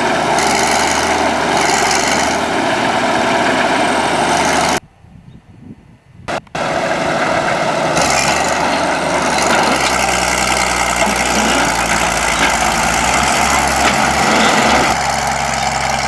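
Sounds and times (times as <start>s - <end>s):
heavy machine engine humming: 0.0s - 4.8s, 6.3s - 16.0s.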